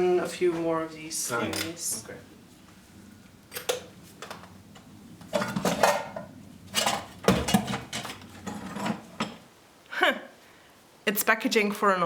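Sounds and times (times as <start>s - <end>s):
objects handled and set down: 3.5s - 9.5s
tins and containers clattering: 5.3s - 9.4s.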